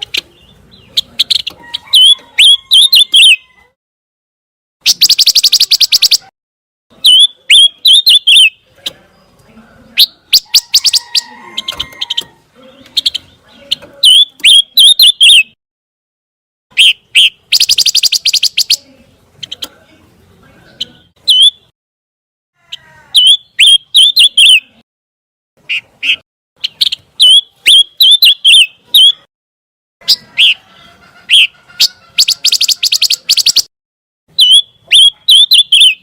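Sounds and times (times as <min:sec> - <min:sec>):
songbird sharp high chirps: 0:04.8 - 0:06.3, 0:07.0 - 0:09.4, 0:10.0 - 0:15.6, 0:16.7 - 0:19.8, 0:20.7 - 0:21.7, 0:23.2 - 0:24.8, 0:25.6 - 0:29.3, 0:31.4 - 0:33.7, 0:34.3 - 0:36.0
songbird rattling trills: 0:16.8 - 0:18.8, 0:32.2 - 0:33.7.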